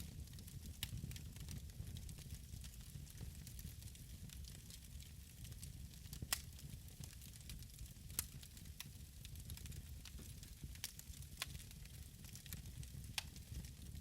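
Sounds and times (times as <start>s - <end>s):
fire crackling and popping: 0.0s - 14.0s
fire rumbling: 0.0s - 14.0s.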